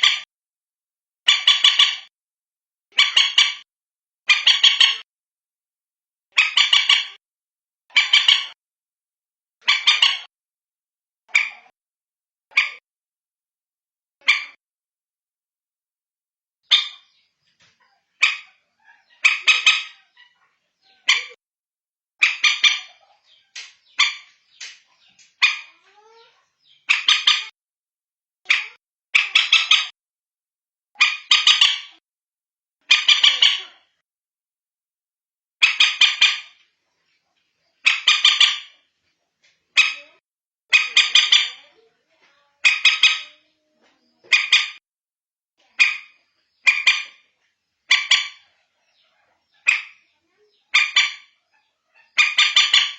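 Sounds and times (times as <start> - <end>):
moorhen calls: 2.9 - 3.6, 6.4 - 7.2, 7.9 - 8.6, 9.6 - 10.3, 16.7 - 21.4, 22.2 - 27.5, 31.0 - 32.0, 32.9 - 33.9, 37.8 - 38.8, 42.6 - 43.6, 44.2 - 44.8, 45.8 - 47.2, 47.9 - 52.9.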